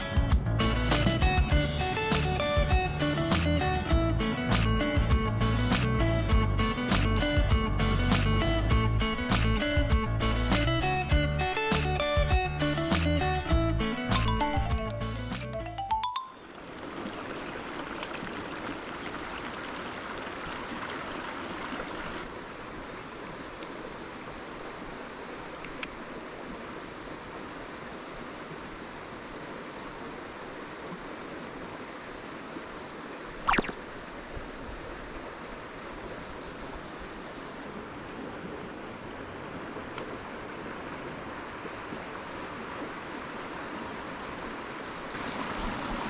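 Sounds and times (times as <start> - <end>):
stream running over rocks: 15.6 - 46.0.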